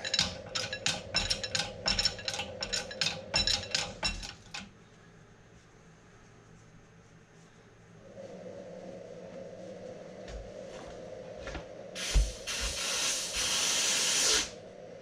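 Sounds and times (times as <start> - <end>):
metal tools clinking: 0.0 - 4.7.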